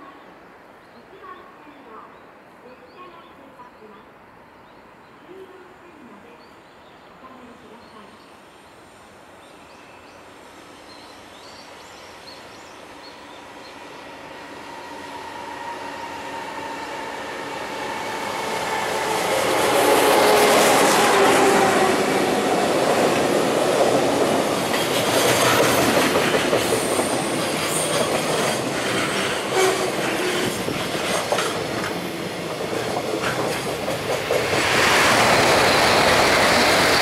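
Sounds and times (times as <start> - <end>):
freight train passing: 7.0 - 37.0
locomotive whine: 13.8 - 37.0.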